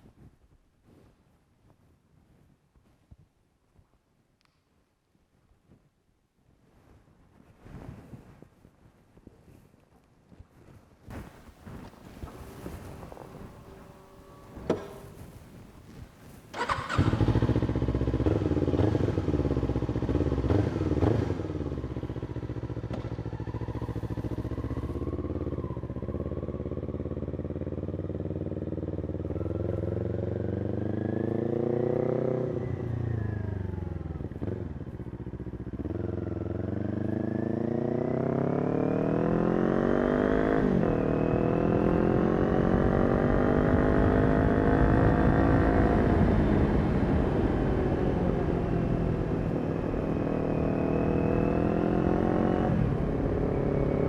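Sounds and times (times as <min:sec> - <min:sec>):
gear change: 0:11.1 - 0:20.1
motorcycle engine revving: 0:11.2 - 0:54.0.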